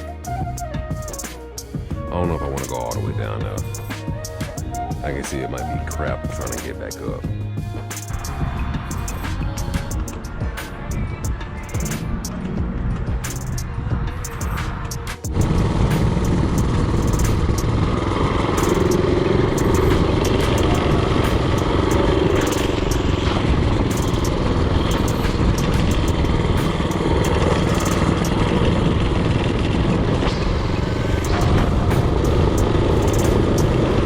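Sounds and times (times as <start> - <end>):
mini-bike engine running: 15.3 - 34.0.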